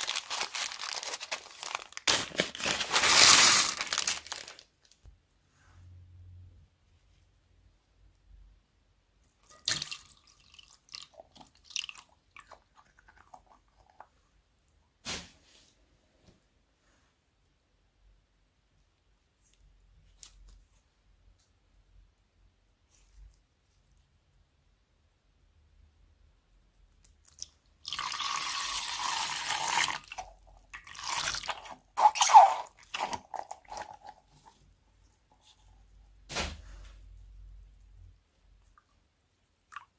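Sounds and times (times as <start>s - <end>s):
slime squelching: 29.9s - 34.7s.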